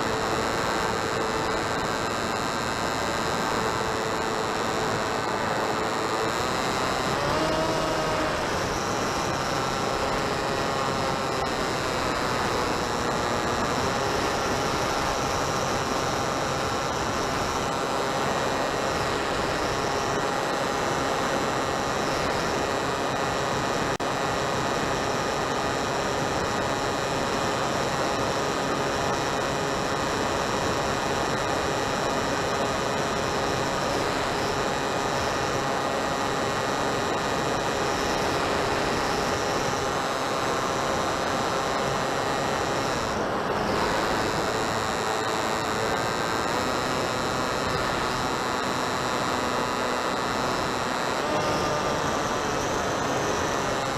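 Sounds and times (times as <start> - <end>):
electric motor whine: 0.0 - 53.9.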